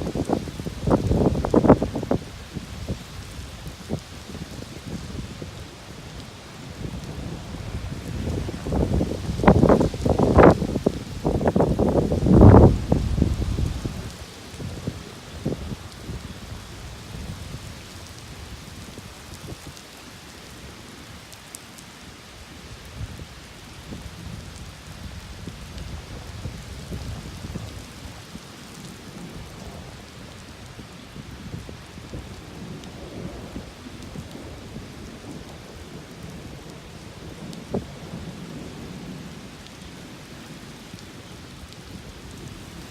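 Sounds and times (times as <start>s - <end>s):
rain hissing: 0.0s - 42.9s
rolling thunder: 6.8s - 16.3s.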